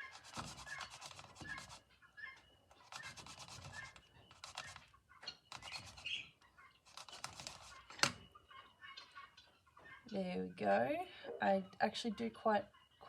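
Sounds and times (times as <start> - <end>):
thread rubbing on ink pad: 0.0 - 1.8, 2.8 - 4.8.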